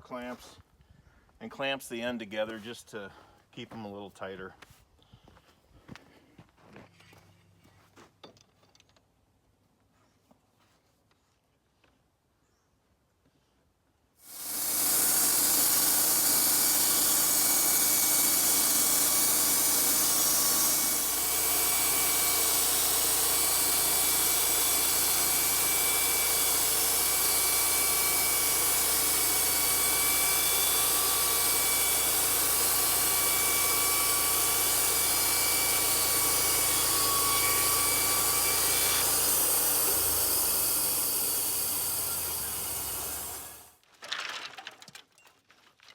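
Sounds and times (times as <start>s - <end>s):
band sawmill sawing boards: 14.2s - 43.7s.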